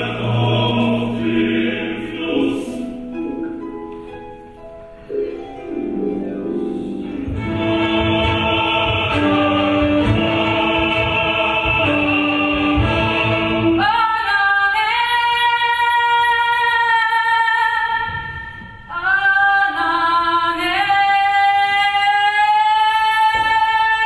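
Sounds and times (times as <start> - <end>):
voices singing sustained chords: 0.0 - 3.7, 5.0 - 18.0.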